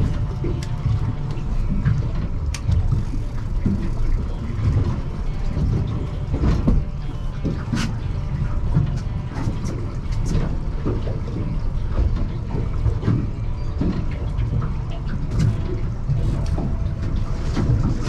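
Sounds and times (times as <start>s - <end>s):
low rumble of wind and sea: 0.0s - 18.0s
water splashing against boat hull: 0.0s - 18.0s.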